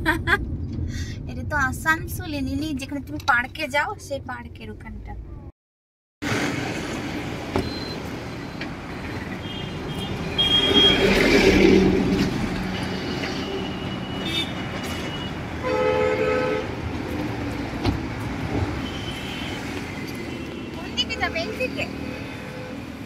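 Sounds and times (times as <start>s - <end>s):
traffic rumble: 0.0s - 5.5s, 6.2s - 23.0s
vehicle horns honking: 9.4s - 11.4s, 13.4s - 16.8s, 18.8s - 23.0s.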